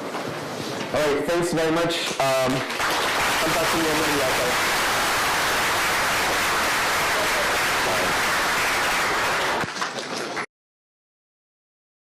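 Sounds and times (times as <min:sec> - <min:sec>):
audience applauding: 0:02.4 - 0:10.5.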